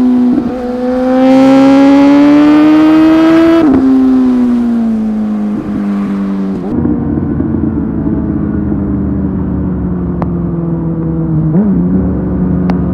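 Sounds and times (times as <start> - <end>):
motorbike engine revving: 0.0 - 9.4.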